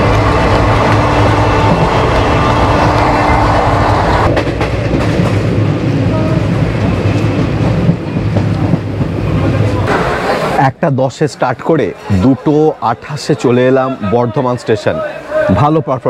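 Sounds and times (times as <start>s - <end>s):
train wheels rumbling on track: 0.0s - 10.6s.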